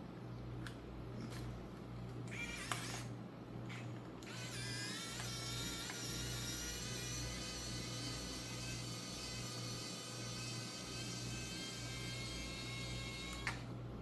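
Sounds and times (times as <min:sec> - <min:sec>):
small electric motor whining: 0:02.3 - 0:03.1, 0:03.7 - 0:13.7.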